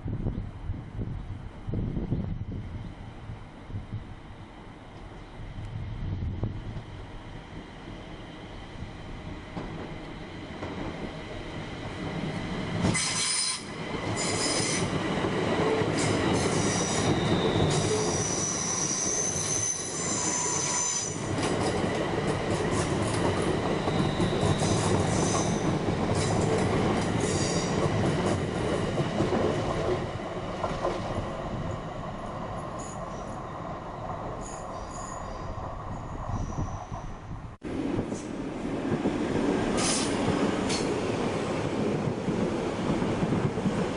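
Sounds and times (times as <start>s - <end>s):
train wheels rumbling on rails: 0.0s - 43.9s
shrill wheel squeals: 12.9s - 14.9s, 16.0s - 21.3s, 23.8s - 26.4s, 34.4s - 37.2s.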